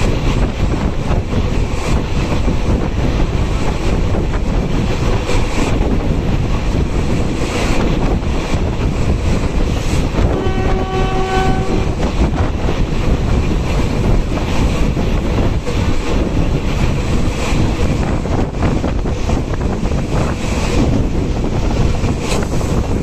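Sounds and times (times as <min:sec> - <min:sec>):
rumble of wheels on rail: 0:00.0 - 0:23.0
wind on the microphone: 0:00.0 - 0:23.0
locomotive horn: 0:10.2 - 0:12.2.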